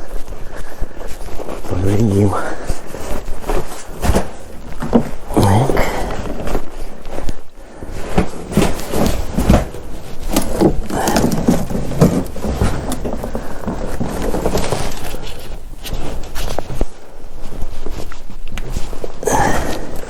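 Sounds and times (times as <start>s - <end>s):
hands scraping and knocking: 1.2s - 7.4s, 8.0s - 17.0s.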